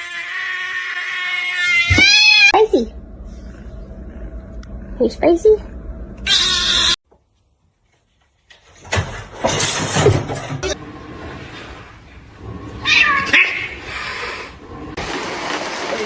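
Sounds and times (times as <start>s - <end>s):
cat meowing and yowling: 0.0s - 2.6s.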